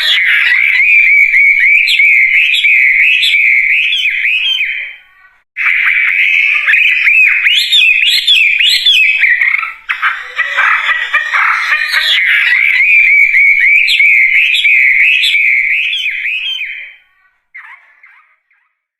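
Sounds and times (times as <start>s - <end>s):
songbird warbling: 5.6s - 16.9s.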